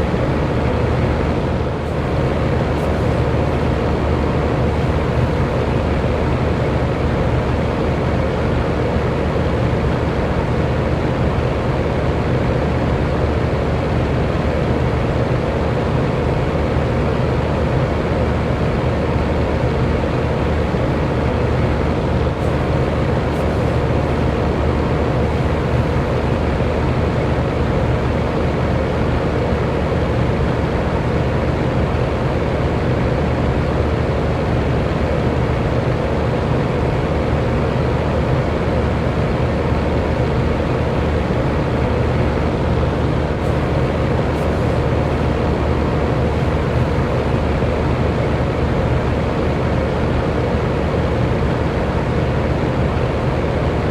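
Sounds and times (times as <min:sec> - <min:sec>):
low motor hum: 0:00.0 - 0:06.6, 0:20.4 - 0:27.3, 0:39.8 - 0:48.9
electric fan air whoosh: 0:00.0 - 0:06.7, 0:19.9 - 0:27.4, 0:38.9 - 0:49.4.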